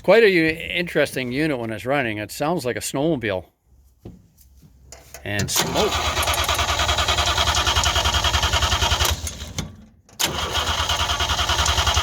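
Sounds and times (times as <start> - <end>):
engine cranking by starter: 5.4 - 12.0.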